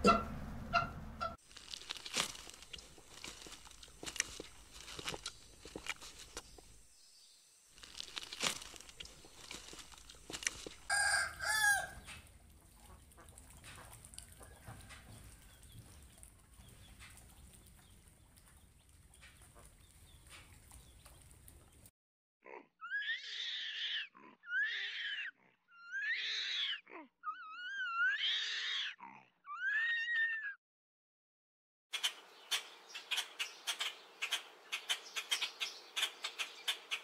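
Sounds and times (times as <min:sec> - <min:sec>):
farm animal squealing calls: 0:22.5 - 0:30.6.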